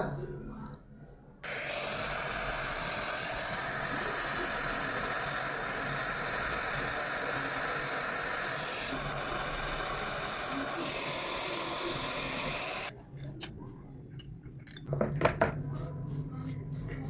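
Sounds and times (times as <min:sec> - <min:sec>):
torch flame hissing: 0:01.4 - 0:12.9.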